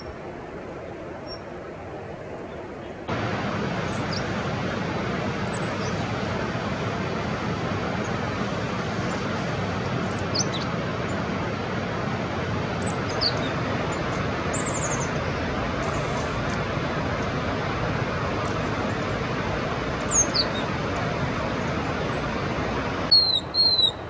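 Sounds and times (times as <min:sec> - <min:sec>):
steady rushing noise: 0:00.0 - 0:23.1
songbird chirps: 0:02.4 - 0:06.4, 0:07.9 - 0:11.3, 0:12.7 - 0:17.4, 0:20.0 - 0:22.5, 0:23.1 - 0:24.0.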